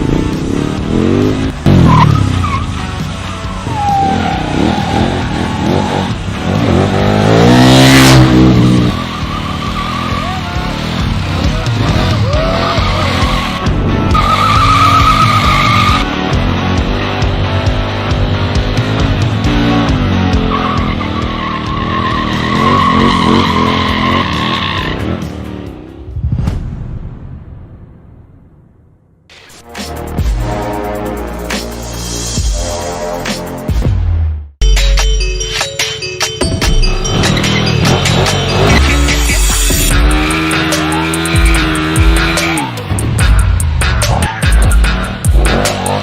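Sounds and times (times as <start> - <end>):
motorcycle engine revving: 0.0 - 26.2, 37.0 - 46.0
music with steady beat: 29.6 - 46.0.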